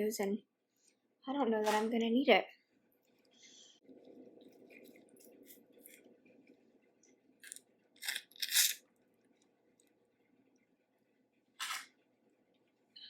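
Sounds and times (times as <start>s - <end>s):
soft chewing: 3.0s - 10.8s.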